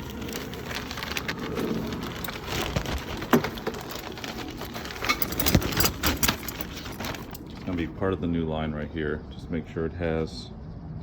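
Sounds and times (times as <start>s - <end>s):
metal fittings clicking and rustling: 0.0s - 7.8s.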